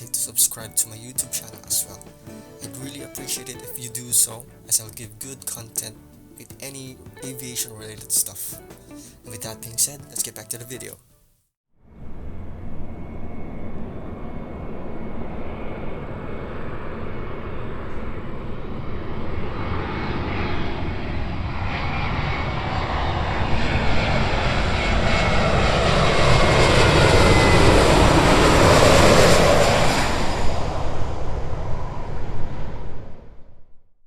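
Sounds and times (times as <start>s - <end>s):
jet engine roar with whine: 11.9s - 33.6s.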